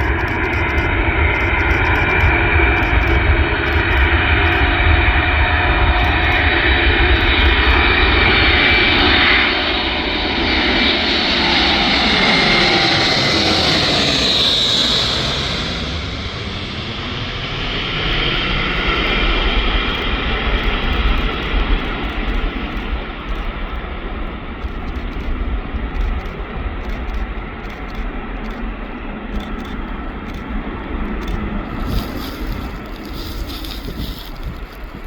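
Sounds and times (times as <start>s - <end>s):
jet engines roaring: 0.0s - 35.0s.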